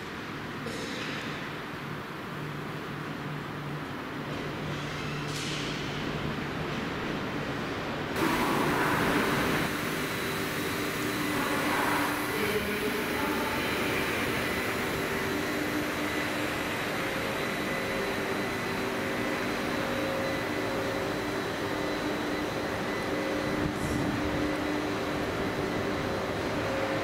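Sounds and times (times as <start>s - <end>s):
traction hum and whine: 0.0s - 27.0s
train rushing past: 8.2s - 20.2s.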